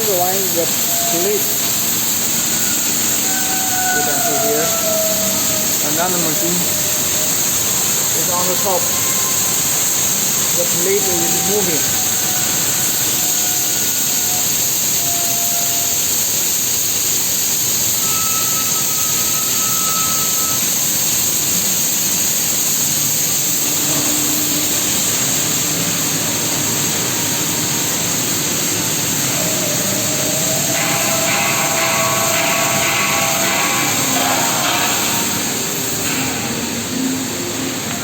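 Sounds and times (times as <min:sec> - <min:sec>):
welding hiss: 0:00.0 - 0:38.0.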